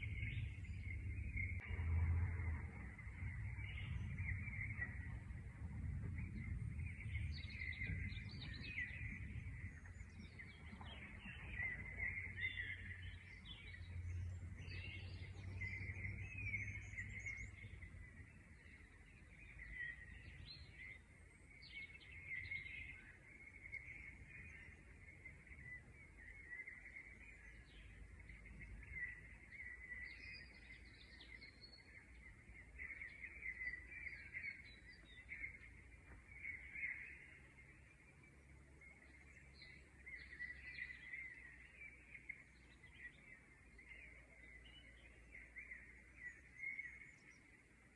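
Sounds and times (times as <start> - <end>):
low rumble: 0.0 - 20.9
birds chirping and twittering: 0.0 - 47.9.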